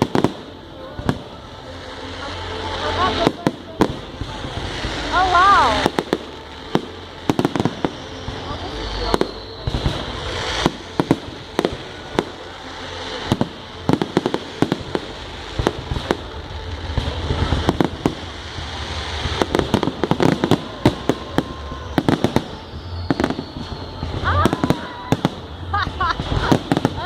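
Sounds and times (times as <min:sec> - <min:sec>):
fireworks bangs and cracks: 0:00.0 - 0:27.0
steady hiss and rumble: 0:00.0 - 0:27.0.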